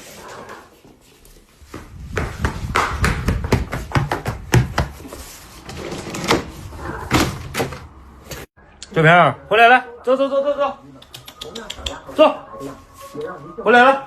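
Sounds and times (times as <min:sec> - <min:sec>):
knocks and thumps: 0:01.8 - 0:05.1.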